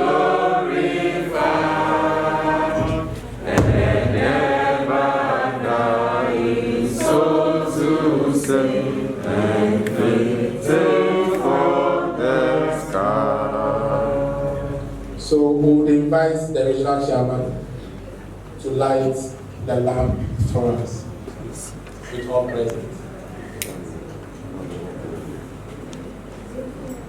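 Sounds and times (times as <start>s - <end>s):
choir singing: 0.0s - 15.0s
low thump: 2.8s - 4.9s, 19.9s - 21.3s.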